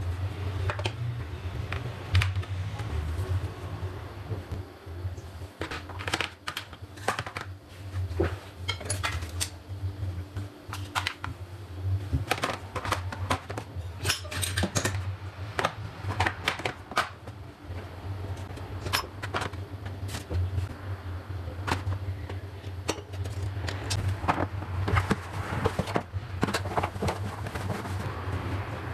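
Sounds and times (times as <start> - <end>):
steady low hum: 0.0 - 28.9
kitchen utensils clinking: 12.4 - 15.1.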